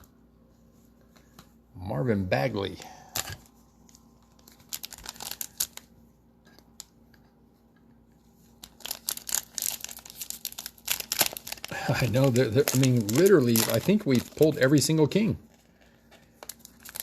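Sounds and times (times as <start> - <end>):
plastic wrapper crinkling and tearing: 3.1 - 5.9, 8.5 - 17.0.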